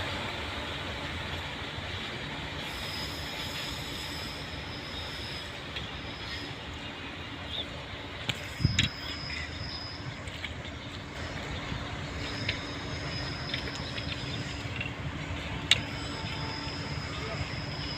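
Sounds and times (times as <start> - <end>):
freight train rolling on rails: 0.0 - 17.9
thin high squeal: 8.4 - 10.5, 12.2 - 15.0, 15.7 - 17.9.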